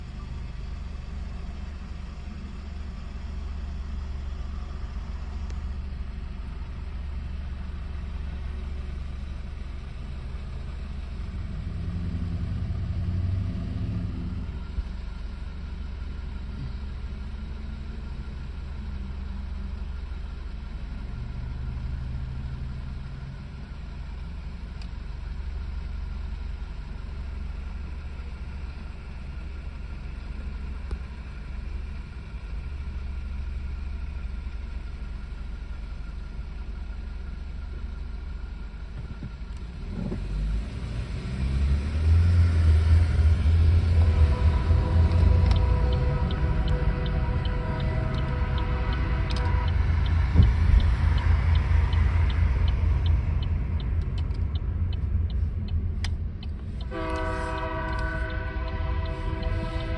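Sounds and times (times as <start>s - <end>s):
diesel locomotive engine rumble: 0.0s - 59.9s.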